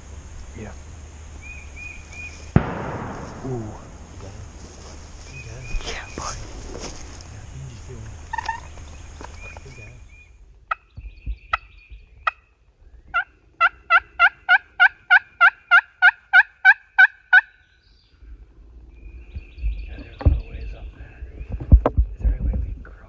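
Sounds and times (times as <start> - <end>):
turkey yelping: 8.2 - 9.6, 13.1 - 17.6.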